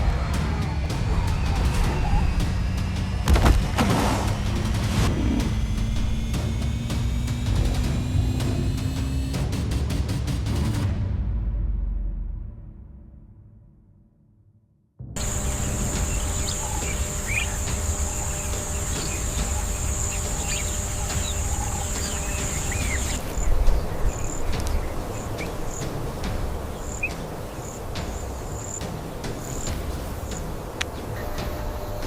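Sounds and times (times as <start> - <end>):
birds chirping: 0.0 - 9.2, 15.2 - 32.0
insect buzzing: 1.0 - 9.3, 15.2 - 32.0.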